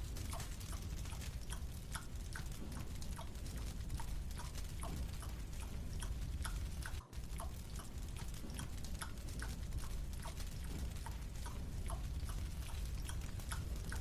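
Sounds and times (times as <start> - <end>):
low steady rumble: 0.0 - 14.0
marshmallow being chewed: 0.4 - 7.6.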